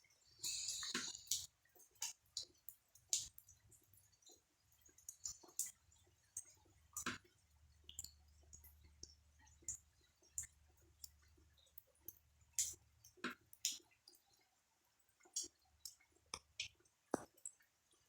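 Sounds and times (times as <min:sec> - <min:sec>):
raindrops tapping on hard surface: 0:15.3 - 0:17.6.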